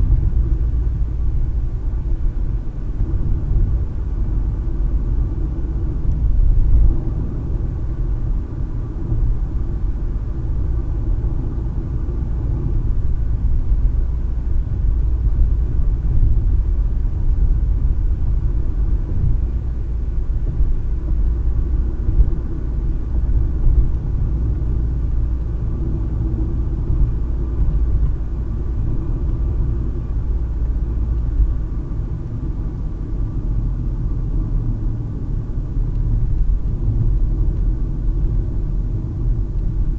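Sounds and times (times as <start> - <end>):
car interior driving rumble: 0.0 - 39.9.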